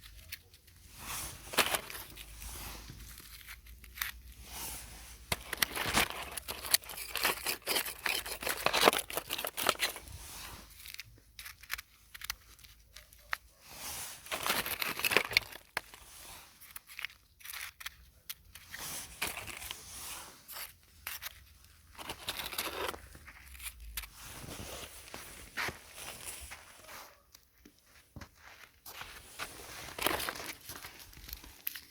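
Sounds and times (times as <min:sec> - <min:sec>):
dry plants crackling and tearing: 0:05.3 - 0:13.4, 0:14.2 - 0:18.3.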